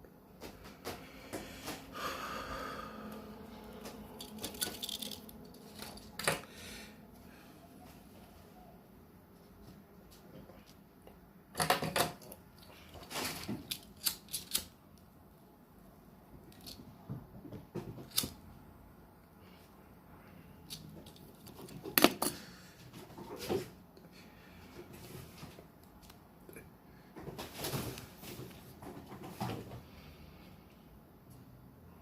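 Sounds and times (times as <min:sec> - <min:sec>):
small objects handled clicking: 0:04.2 - 0:06.4.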